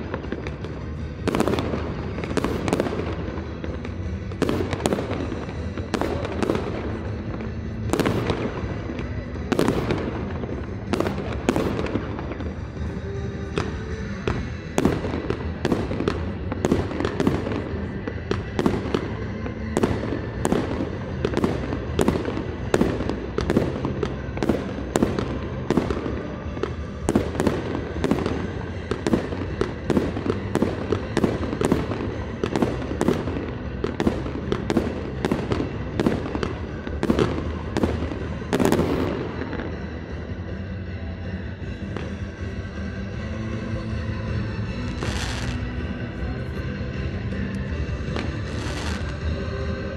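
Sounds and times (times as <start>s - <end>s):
fireworks bursting: 0.0s - 49.9s
music through sound system: 41.6s - 49.9s.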